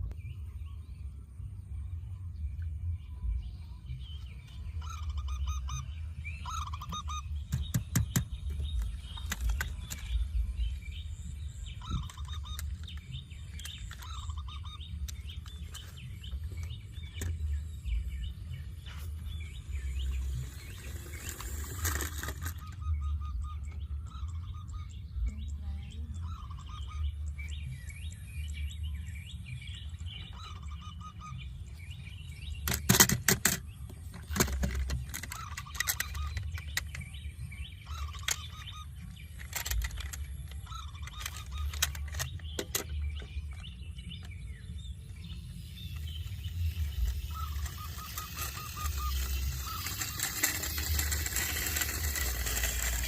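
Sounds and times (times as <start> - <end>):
steady low rumble: 0.0 - 32.6.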